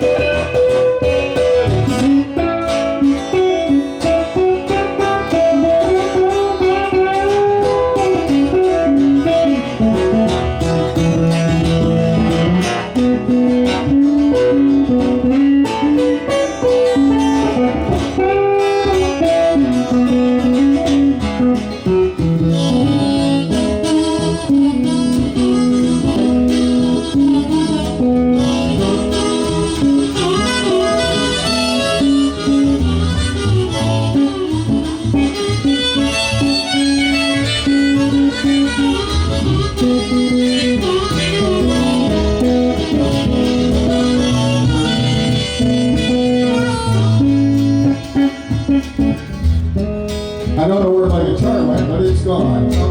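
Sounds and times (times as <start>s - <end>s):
blues guitar playing: 0.0s - 52.9s.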